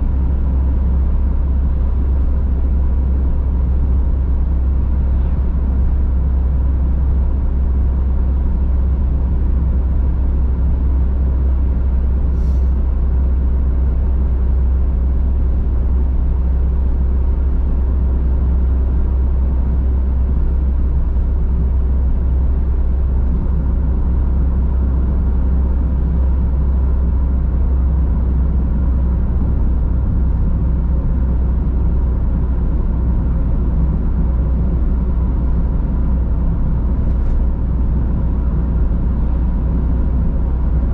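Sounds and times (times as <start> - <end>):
in-car road noise: 0.0 - 40.9.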